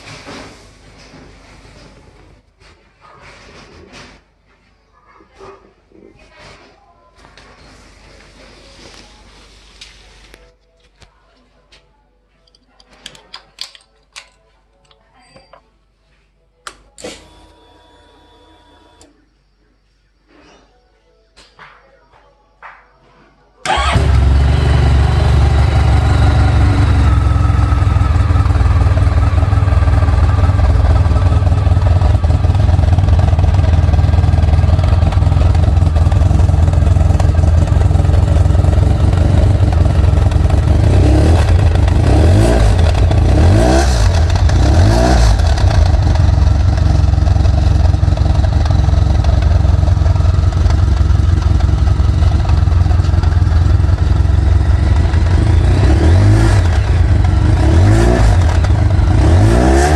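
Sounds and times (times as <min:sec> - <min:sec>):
motorcycle engine idling and revving: 0:23.7 - 0:59.9.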